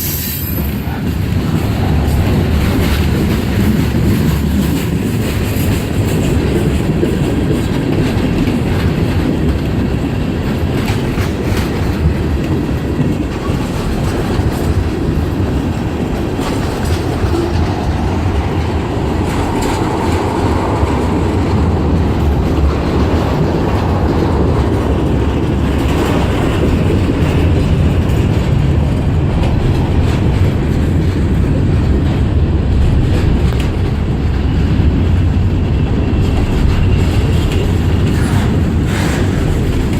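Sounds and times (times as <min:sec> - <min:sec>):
freight train rumble: 0:00.0 - 0:39.9
train wheels clicking over rail joints: 0:00.0 - 0:39.9.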